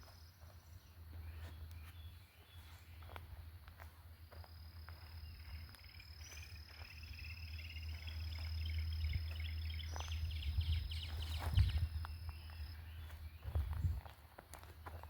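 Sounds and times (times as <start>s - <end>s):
insect high-pitched whine: 4.3s - 13.6s
low rumble on microphone: 7.2s - 14.2s.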